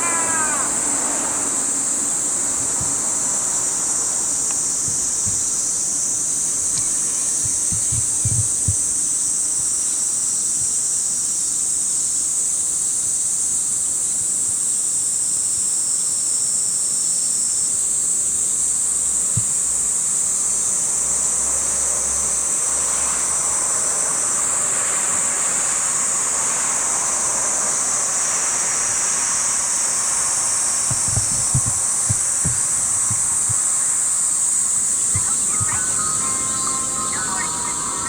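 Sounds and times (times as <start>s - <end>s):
high-pitched insect drone: 0.0s - 10.5s, 18.8s - 38.0s.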